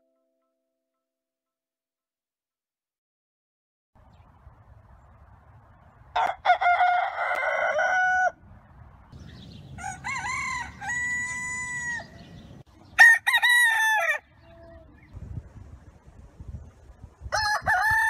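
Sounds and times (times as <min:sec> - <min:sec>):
roosters crowing: 0:06.1 - 0:08.4, 0:09.4 - 0:15.1, 0:17.3 - 0:18.0.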